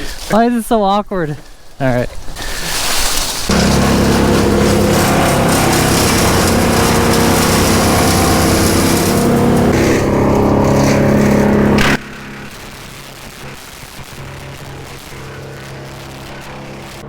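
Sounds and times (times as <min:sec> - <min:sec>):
chainsaw engine running: 0:03.5 - 0:17.0.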